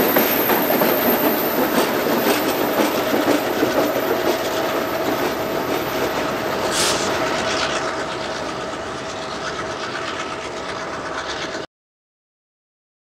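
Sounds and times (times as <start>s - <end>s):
train wheels clacking: 0.0s - 11.6s
brief hiss: 6.7s - 7.8s.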